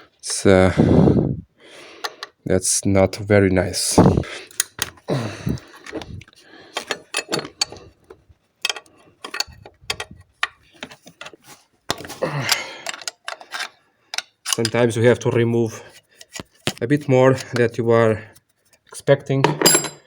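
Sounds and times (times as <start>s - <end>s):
hand tools clicking on metal: 2.0s - 2.4s, 6.7s - 7.9s, 8.6s - 14.9s.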